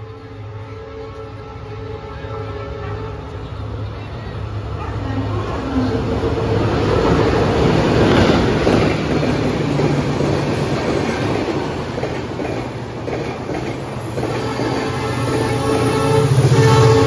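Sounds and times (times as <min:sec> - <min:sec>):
train wheels clattering on rails: 0:06.5 - 0:15.8.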